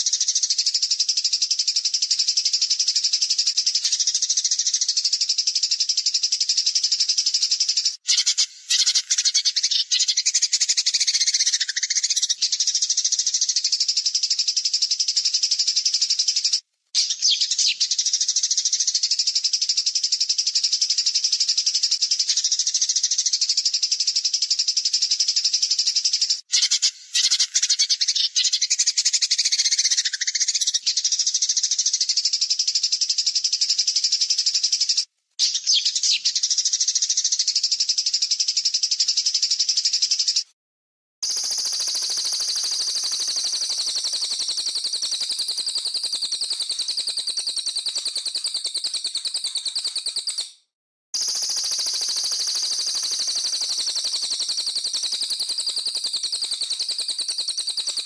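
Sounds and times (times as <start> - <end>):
songbird harsh rapid trills: 7.0 - 13.2, 41.2 - 58.0.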